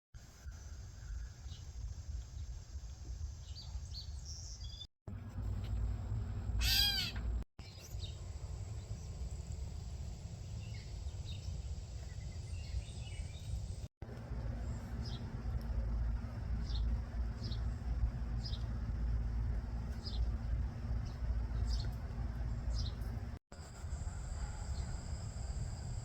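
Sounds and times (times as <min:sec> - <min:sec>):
low wind rumble: 0:00.3 - 0:26.0
harsh bird call: 0:06.6 - 0:07.3
birds chirping: 0:10.4 - 0:13.9, 0:14.5 - 0:23.4.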